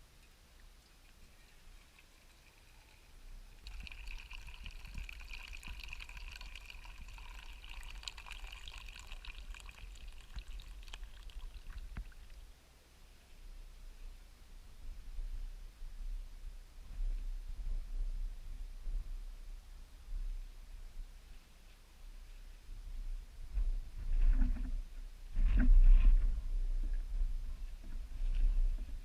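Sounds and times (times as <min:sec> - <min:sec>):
water pouring into a container: 0:01.4 - 0:12.4.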